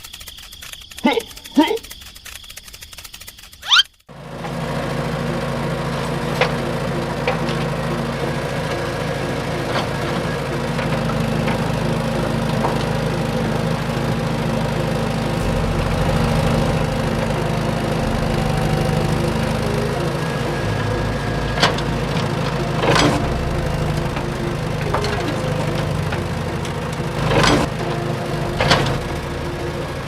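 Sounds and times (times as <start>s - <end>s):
sharp clicks: 0.0s - 4.0s
small motor running: 0.0s - 30.0s
deep hum: 4.1s - 30.0s.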